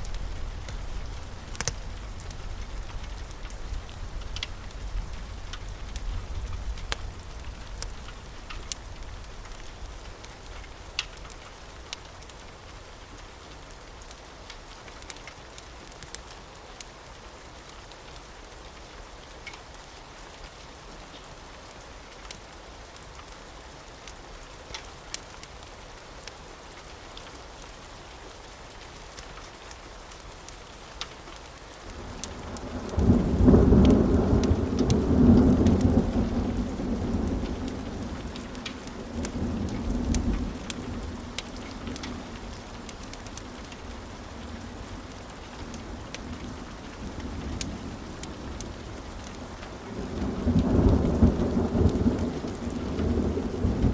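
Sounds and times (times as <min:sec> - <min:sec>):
fireplace crackling and popping: 0:00.0 - 0:17.0, 0:17.6 - 0:53.9
steady rain: 0:00.0 - 0:53.9
thunder rumbling: 0:32.0 - 0:53.9.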